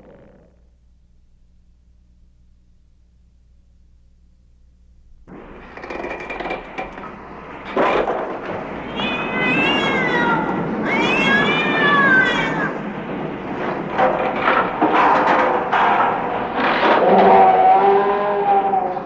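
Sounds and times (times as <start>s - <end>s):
rough noisy background: 5.2s - 18.4s
wavering animal-like cries: 8.5s - 13.0s.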